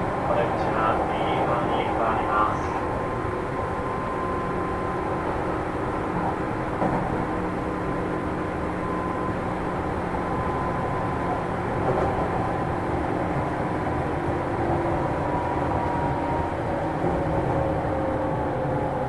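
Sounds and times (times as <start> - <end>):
train wheels rumbling on rails: 5.4 - 7.9.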